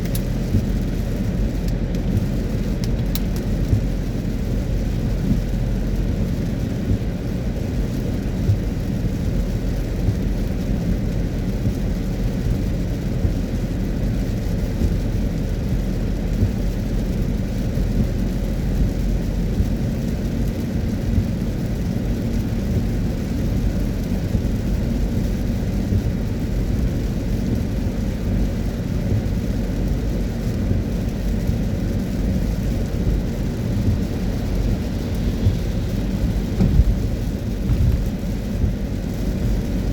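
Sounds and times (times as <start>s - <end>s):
rain pattering: 0.0s - 39.9s
road and tyre noise: 0.0s - 39.9s.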